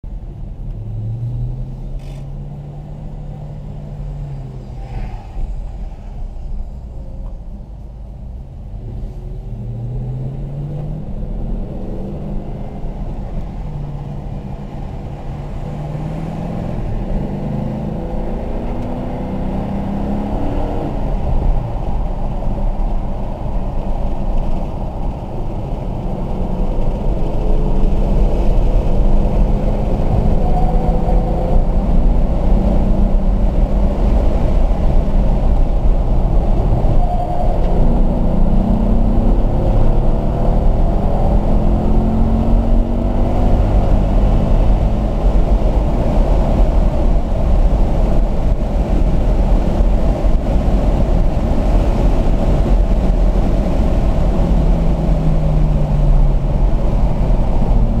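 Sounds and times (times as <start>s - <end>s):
car engine accelerating: 0.1s - 58.0s.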